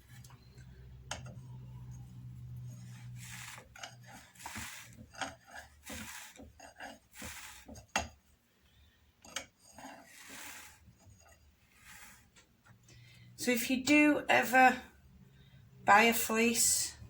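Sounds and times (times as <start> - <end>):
drum carder rasping swishes: 3.0 - 6.5, 7.1 - 7.8.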